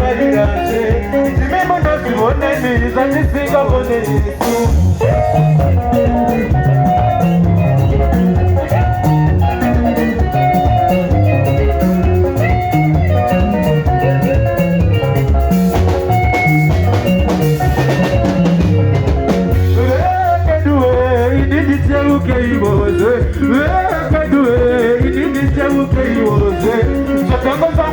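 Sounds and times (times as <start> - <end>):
person singing: 0.0 - 11.1, 19.5 - 27.9
bass guitar: 0.0 - 27.9
drum kit beat: 0.0 - 27.9
electric guitar lines: 0.0 - 27.9.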